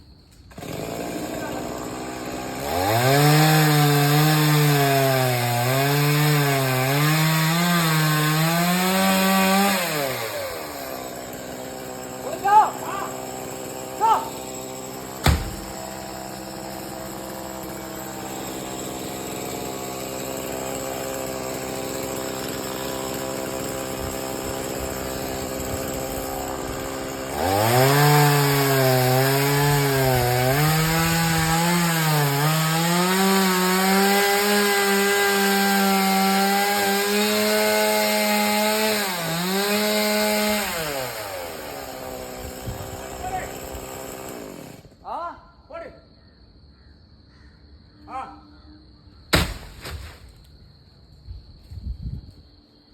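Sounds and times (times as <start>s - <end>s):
chainsaw idling and revving: 0.5s - 45.0s
sharp knock: 15.2s - 15.6s.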